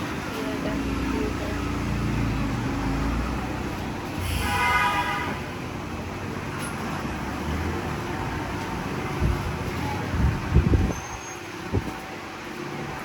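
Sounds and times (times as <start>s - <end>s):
road traffic rumbling: 0.0s - 13.0s
vehicle horn: 4.2s - 5.6s.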